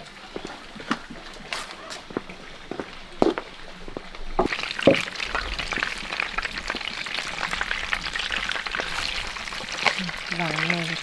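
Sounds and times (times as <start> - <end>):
peanuts crackling in hot pan: 4.5 - 11.0.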